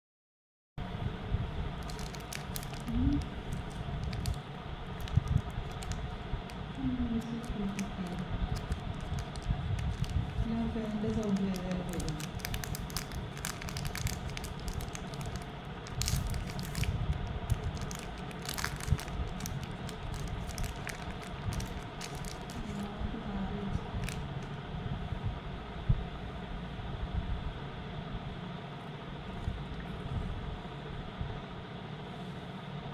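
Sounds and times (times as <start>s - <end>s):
fan whooshing: 0.8s - 32.9s
packaging crinkling: 1.8s - 23.0s, 23.8s - 24.6s.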